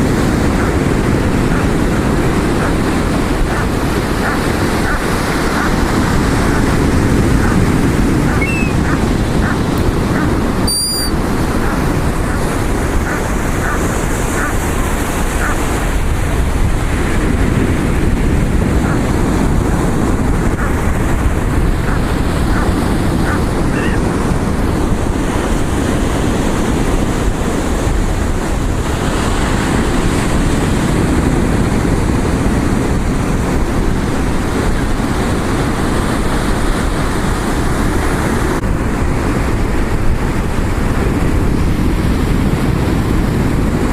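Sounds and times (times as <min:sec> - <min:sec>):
ocean surf washing on shore: 0:00.0 - 0:43.9
wind buffeting microphone: 0:00.0 - 0:43.9
high chirps: 0:08.3 - 0:09.0, 0:10.6 - 0:11.2.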